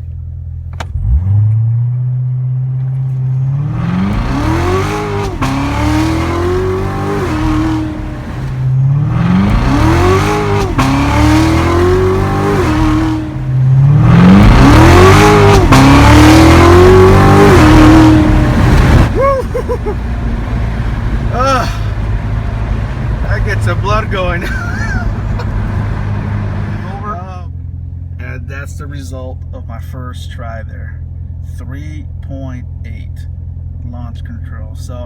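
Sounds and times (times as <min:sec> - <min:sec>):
car engine accelerating hard: 0:00.7 - 0:28.5.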